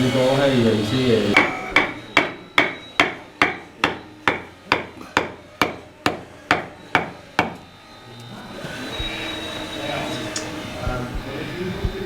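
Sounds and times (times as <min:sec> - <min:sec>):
ringing hammer blows: 0:00.0 - 0:07.9.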